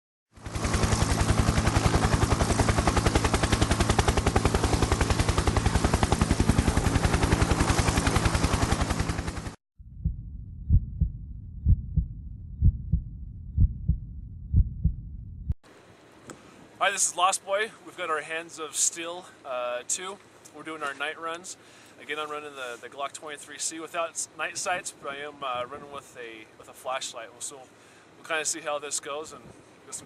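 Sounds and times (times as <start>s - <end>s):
heartbeat-like double thumps: 9.8s - 15.6s.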